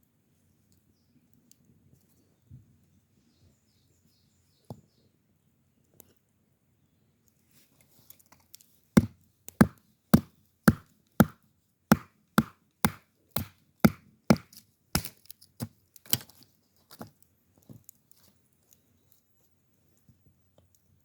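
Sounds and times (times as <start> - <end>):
chopping strikes: 9.0 - 15.2.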